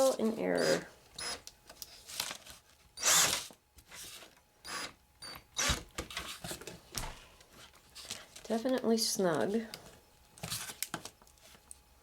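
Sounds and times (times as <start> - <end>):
power drill driving screw into metal: 3.0 - 3.4, 4.7 - 5.8.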